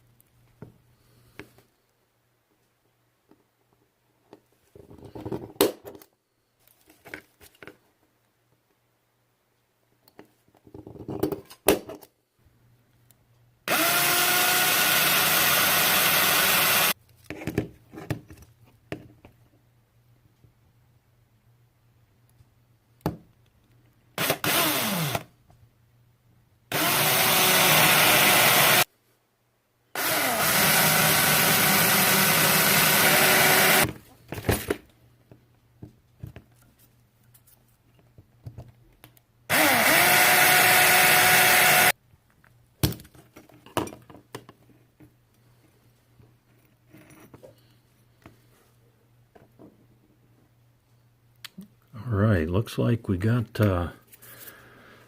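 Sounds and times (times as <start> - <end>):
electric drill whine: 13.7 - 17.0, 24.2 - 25.3, 26.7 - 28.9, 30.0 - 33.9, 39.5 - 41.9.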